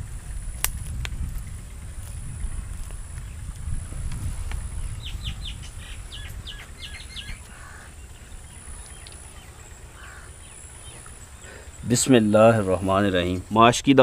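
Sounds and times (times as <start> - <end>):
low rumble: 0.0 - 11.7
small bird chirping: 4.7 - 12.2.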